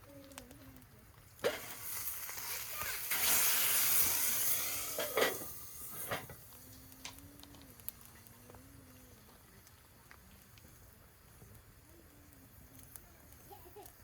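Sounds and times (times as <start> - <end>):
utensils clinking on a griddle: 1.4 - 3.8, 4.5 - 6.4
loud hiss: 1.4 - 7.2.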